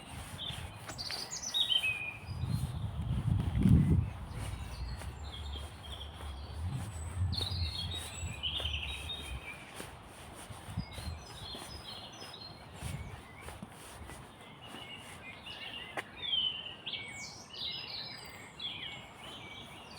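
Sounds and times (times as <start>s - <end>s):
songbirds chirping and trilling: 0.0s - 19.9s
low rumble: 2.3s - 9.5s.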